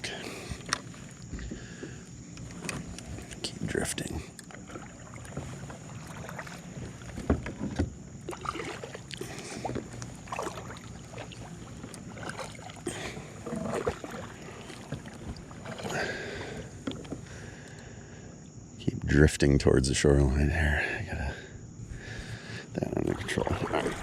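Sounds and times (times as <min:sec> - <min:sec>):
water swishing: 0:00.0 - 0:17.6, 0:22.8 - 0:24.0.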